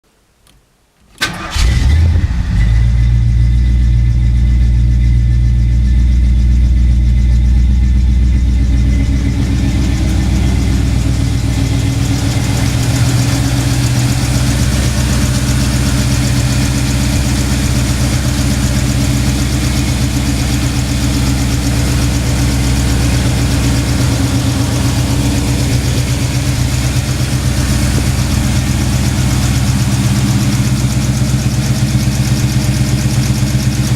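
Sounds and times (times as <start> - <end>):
car engine starting and idling: 1.2 - 33.9.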